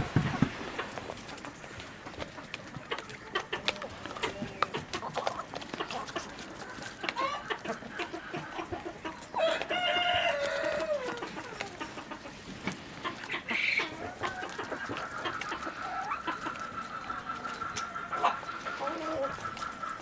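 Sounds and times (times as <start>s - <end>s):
chickens clucking: 0.0s - 20.0s
rooster crowing: 9.4s - 11.2s.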